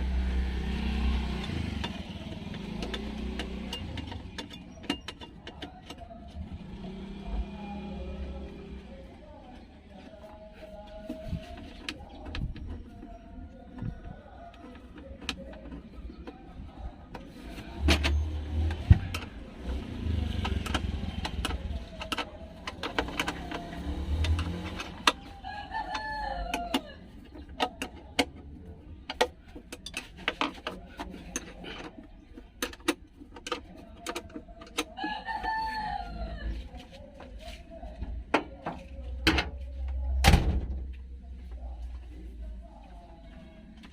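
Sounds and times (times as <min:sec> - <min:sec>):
sharp clicks and knocks: 0:01.4 - 0:06.2, 0:17.1 - 0:25.3
rooster crowing: 0:25.4 - 0:27.0, 0:35.0 - 0:36.6.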